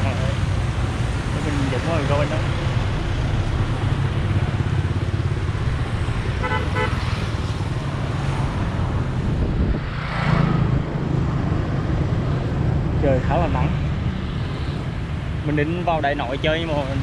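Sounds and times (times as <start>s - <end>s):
street traffic rumbling: 0.0s - 17.0s
vehicle horn toot: 6.4s - 7.0s.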